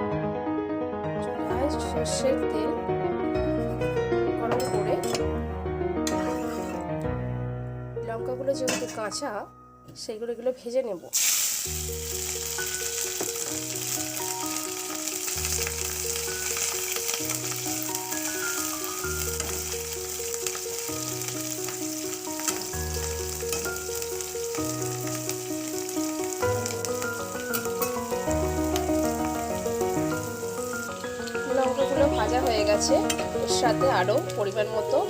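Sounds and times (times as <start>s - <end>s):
background music: 0.0s - 35.0s
chillies sizzling in oil: 6.1s - 6.8s, 10.0s - 35.0s.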